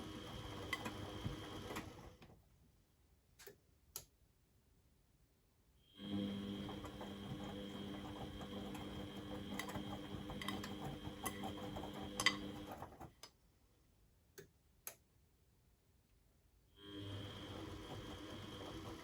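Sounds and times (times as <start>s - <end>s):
washing machine motor whine: 0.0s - 2.3s, 5.9s - 13.1s, 16.8s - 19.0s.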